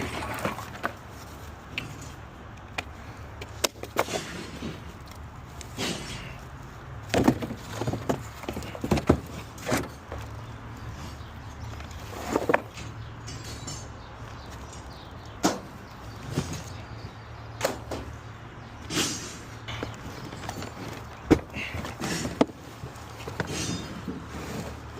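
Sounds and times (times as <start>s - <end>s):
debris thuds and clatters: 7.1s - 10.2s, 19.0s - 24.9s.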